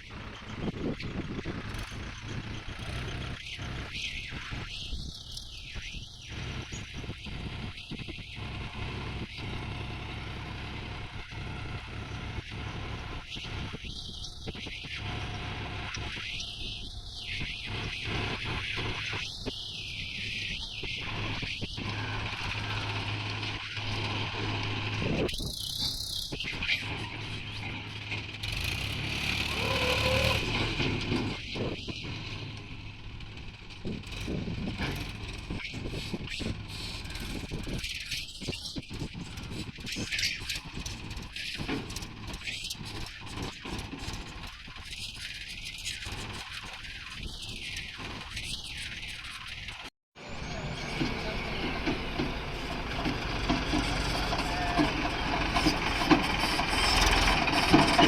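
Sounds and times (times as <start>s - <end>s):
heavy diesel engines running: 0.0s - 5.3s, 6.1s - 14.4s, 15.0s - 16.1s, 21.0s - 26.2s, 26.8s - 37.6s, 50.2s - 58.0s.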